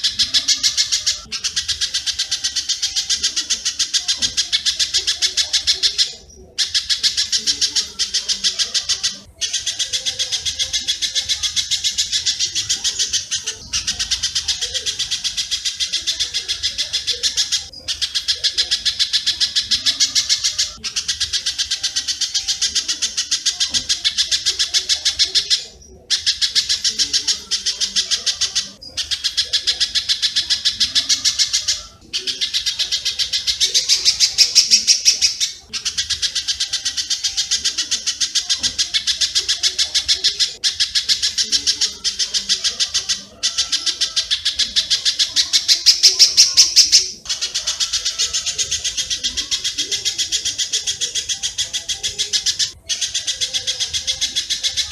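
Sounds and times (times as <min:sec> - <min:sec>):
birds chipping rapidly: 0:00.0 - 0:54.9.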